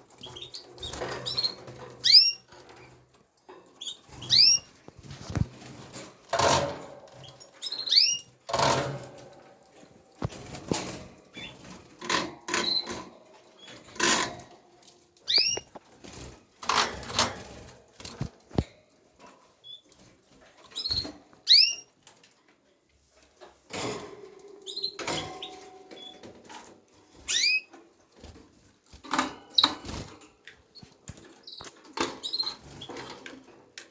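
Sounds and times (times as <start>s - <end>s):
canaries chirping: 0.1s - 3.0s, 3.6s - 9.2s, 10.4s - 15.8s, 19.6s - 20.0s, 20.6s - 22.0s, 24.3s - 28.4s, 29.1s - 33.4s
sharp clicks and rustles: 0.1s - 7.7s, 8.5s - 21.4s.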